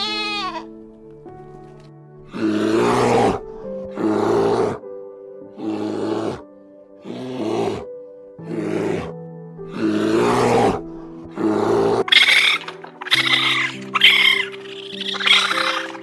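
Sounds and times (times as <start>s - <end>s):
background music sustained notes: 0.0s - 16.0s
animal rough noisy calls: 11.5s - 16.0s.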